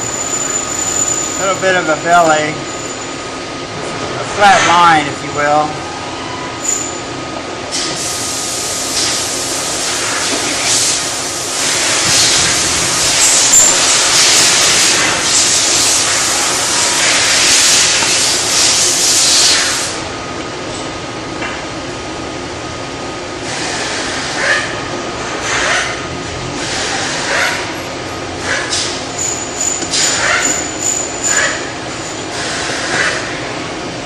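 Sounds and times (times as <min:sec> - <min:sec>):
rushing hissing water: 0:07.8 - 0:20.0.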